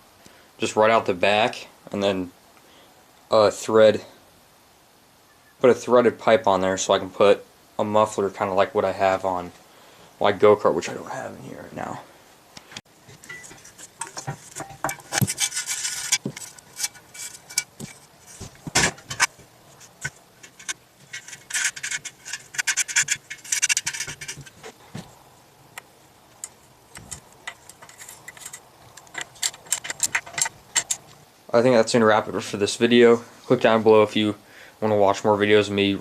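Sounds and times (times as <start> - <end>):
metal tools clinking and knocking: 13.1 - 24.7, 26.4 - 31.1.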